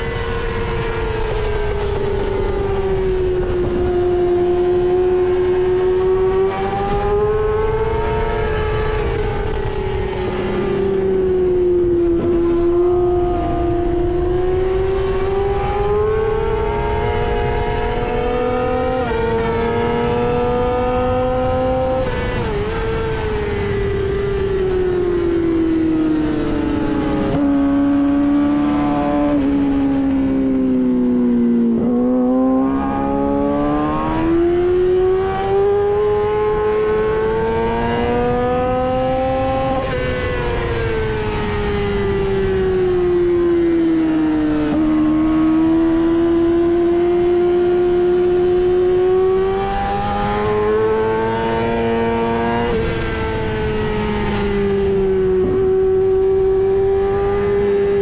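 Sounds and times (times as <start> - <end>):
motorcycle engine at high revs: 0.0 - 58.0.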